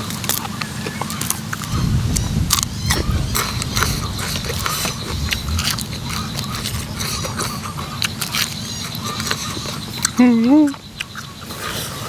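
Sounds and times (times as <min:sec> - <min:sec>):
person chewing: 0:02.5 - 0:12.0.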